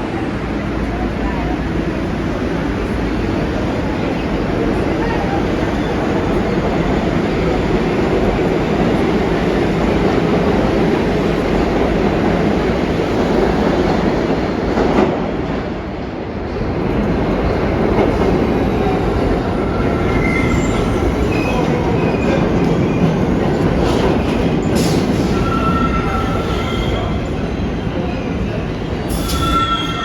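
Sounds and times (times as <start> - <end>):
subway train rumbling on rails: 0.0 - 30.0
high wheel squeals: 29.1 - 30.0.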